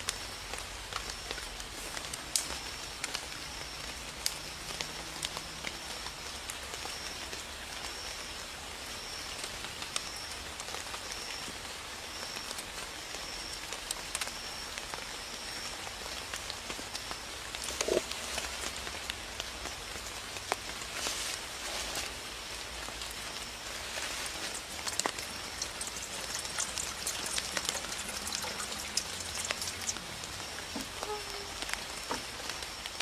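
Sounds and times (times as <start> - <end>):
light rain hiss: 0.0 - 33.0.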